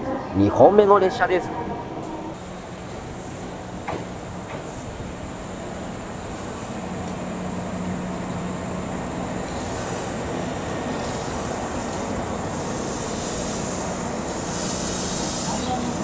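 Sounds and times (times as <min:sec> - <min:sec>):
electric train pulling in: 0:00.0 - 0:16.0
high hiss: 0:02.6 - 0:07.7, 0:08.4 - 0:16.0.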